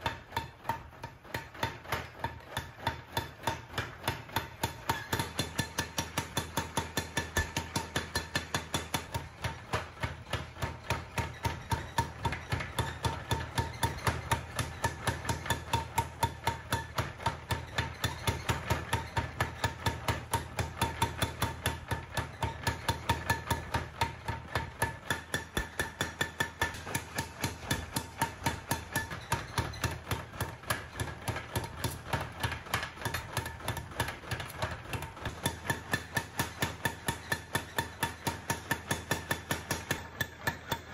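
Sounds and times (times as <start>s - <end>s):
hammer ringing on hot steel: 24.8s - 32.0s, 35.3s - 40.9s.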